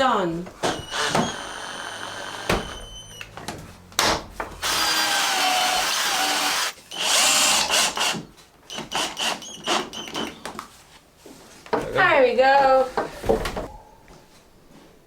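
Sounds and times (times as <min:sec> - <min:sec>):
cordless drill running: 0:00.7 - 0:02.5, 0:04.6 - 0:08.2.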